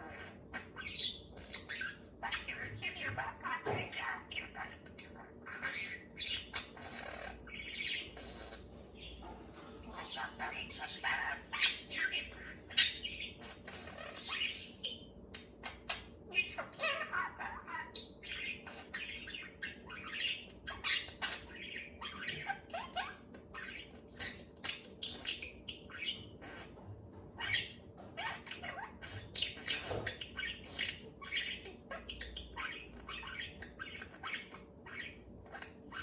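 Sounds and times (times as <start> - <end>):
budgerigar chattering and warbling: 0.0 - 26.8.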